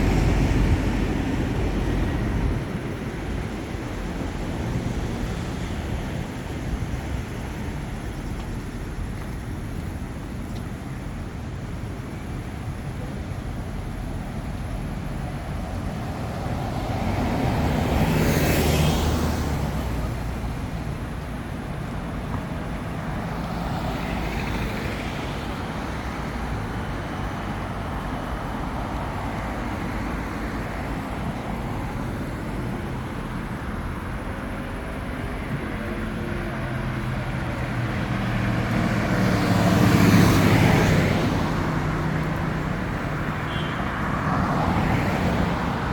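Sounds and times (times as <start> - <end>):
traffic rumble: 0.0 - 45.9
car passing close: 15.6 - 20.8, 23.2 - 45.9.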